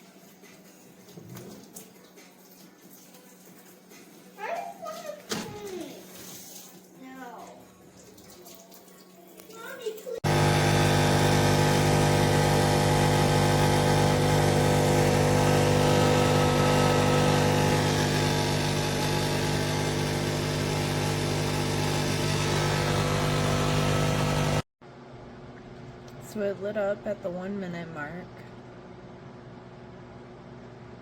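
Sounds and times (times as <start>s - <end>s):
air fryer fan humming: 10.2s - 27.4s.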